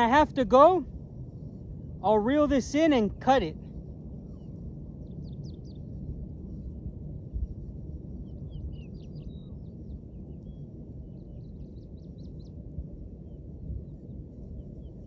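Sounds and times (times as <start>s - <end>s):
low outdoor rumble: 0.0s - 15.0s
small birds chirping: 4.2s - 6.7s, 7.5s - 12.6s.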